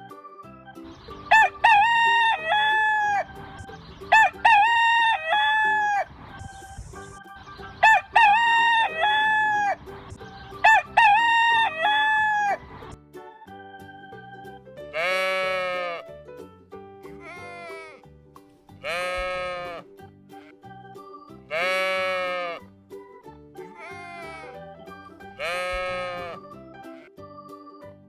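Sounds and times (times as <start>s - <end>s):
quiet background music: 0.0s - 28.0s
rooster crowing: 1.3s - 3.3s, 4.1s - 6.1s, 7.8s - 9.8s, 10.6s - 12.6s.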